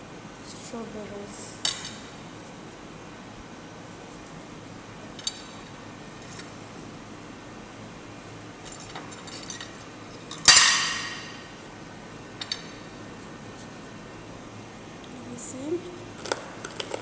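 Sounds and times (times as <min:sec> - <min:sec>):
loud ringing clatter of dishes: 0:10.4 - 0:11.5.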